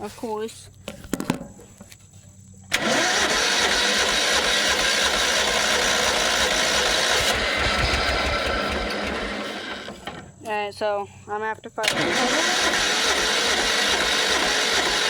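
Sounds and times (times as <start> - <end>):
lawn tractor engine starting: 2.6 - 10.4, 11.8 - 15.0.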